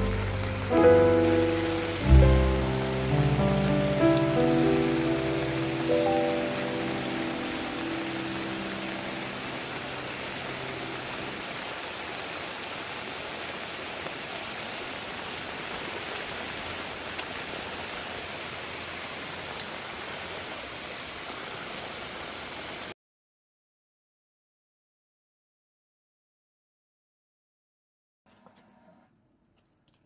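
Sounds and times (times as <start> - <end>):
background music: 0.0 - 11.3
heavy rain hiss: 0.0 - 22.9
ticks of raindrops: 0.0 - 22.9.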